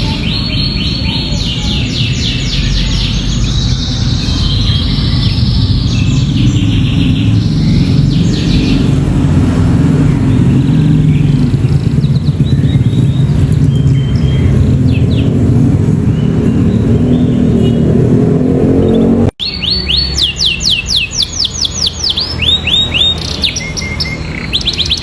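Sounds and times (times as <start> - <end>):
canary singing trills: 0.0 - 18.0, 18.8 - 25.0
loud low rumble: 0.0 - 19.4.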